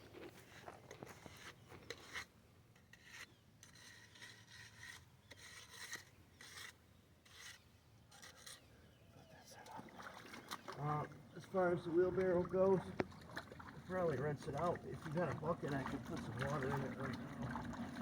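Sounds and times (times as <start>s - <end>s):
hand tool scraping concrete: 0.3s - 8.7s.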